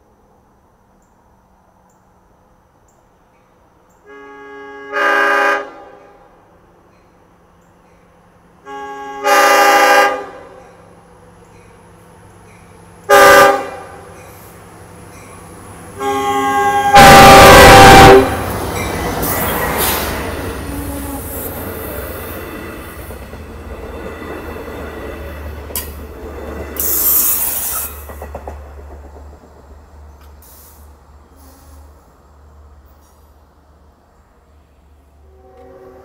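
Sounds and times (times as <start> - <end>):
train coaches rumbling by: 1.3 - 36.0
train horn blasts: 4.0 - 6.4, 8.6 - 10.8, 13.0 - 14.1, 15.9 - 21.6, 35.2 - 36.0.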